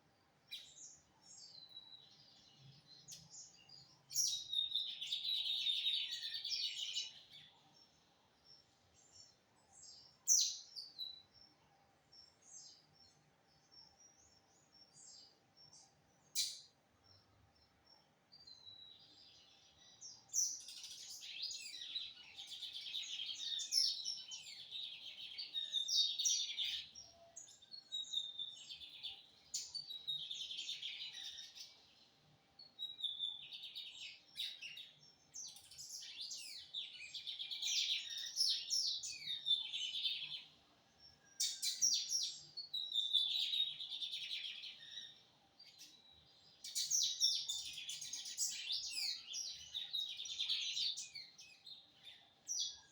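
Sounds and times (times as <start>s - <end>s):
bird high chirps and trills: 12.2s - 52.9s.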